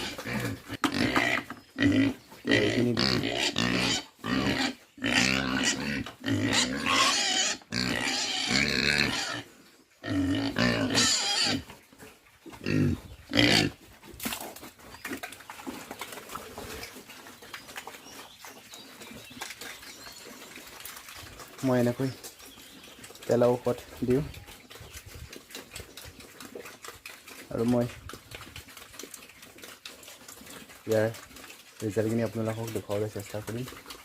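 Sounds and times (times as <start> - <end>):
pigs squealing: 0.0 - 11.8, 12.6 - 13.8.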